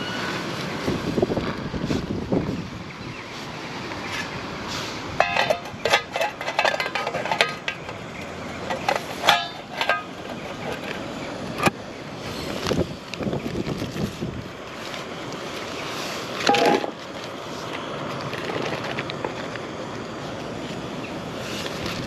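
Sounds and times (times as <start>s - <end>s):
steady background hiss: 0.0s - 22.0s
clinks and clicks of camp gear: 5.2s - 11.7s, 16.3s - 20.5s.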